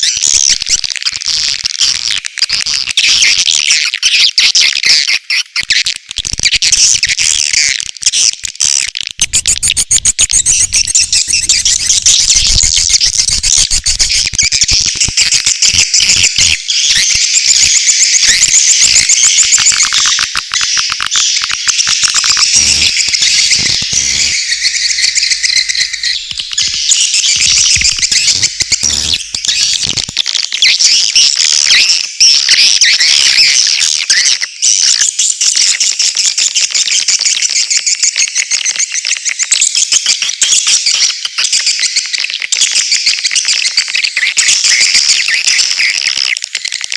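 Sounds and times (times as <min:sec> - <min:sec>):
swiftlets twittering: 0:08.8 - 0:17.0, 0:18.2 - 0:30.1.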